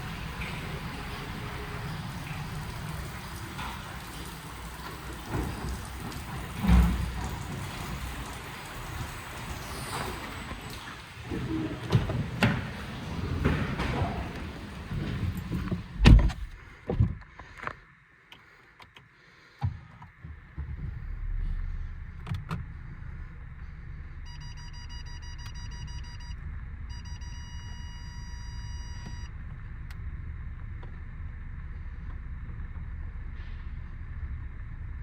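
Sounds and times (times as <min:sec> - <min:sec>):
vehicle low rumble: 0:00.0 - 0:17.3, 0:20.1 - 0:35.0
car doors shutting: 0:05.0 - 0:17.3
electronic beeping tone: 0:24.3 - 0:29.3.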